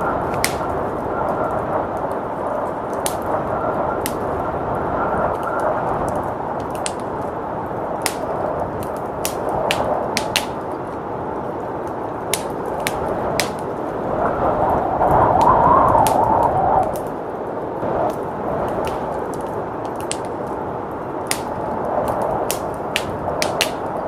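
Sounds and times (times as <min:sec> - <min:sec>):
blizzard wind rushing: 0:00.0 - 0:24.0
wood fire crackling and popping: 0:00.0 - 0:24.0.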